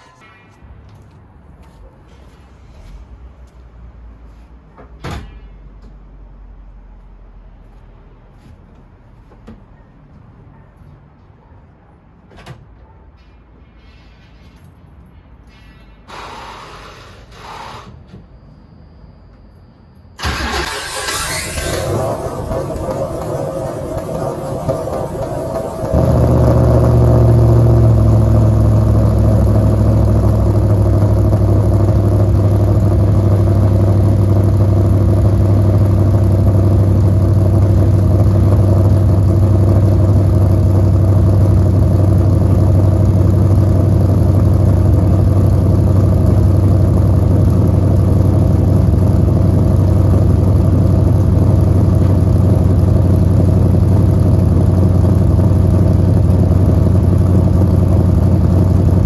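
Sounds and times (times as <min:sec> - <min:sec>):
car engine idling: 0:20.2 - 0:59.0.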